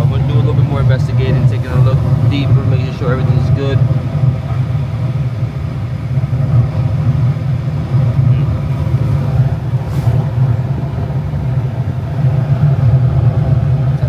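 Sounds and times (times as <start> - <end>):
furnace fans humming: 0.0 - 14.0.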